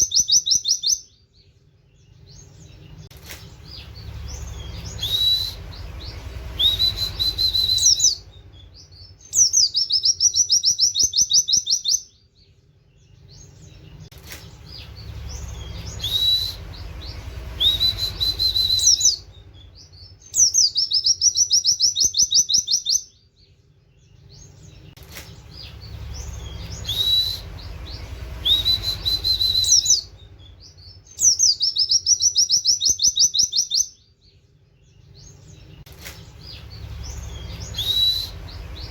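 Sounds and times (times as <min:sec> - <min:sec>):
bird whistles and fast trill: 0:00.0 - 0:01.2, 0:03.6 - 0:12.2, 0:14.7 - 0:23.2, 0:25.6 - 0:34.0, 0:36.1 - 0:38.9.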